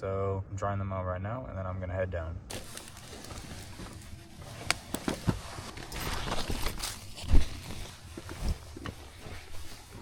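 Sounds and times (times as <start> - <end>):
rustling: 2.5 - 10.0.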